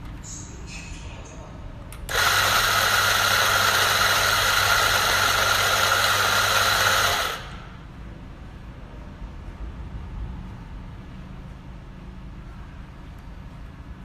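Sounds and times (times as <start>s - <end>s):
coffee grinder grinding beans: 2.1s - 7.6s.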